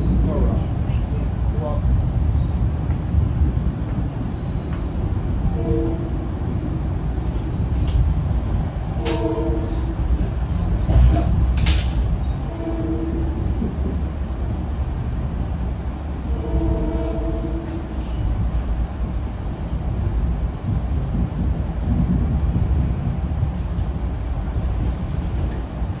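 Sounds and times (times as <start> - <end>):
train rumbling on rails: 0.0 - 26.0
train horn blasts: 5.4 - 6.3, 8.9 - 10.0, 12.4 - 13.5, 16.2 - 18.1.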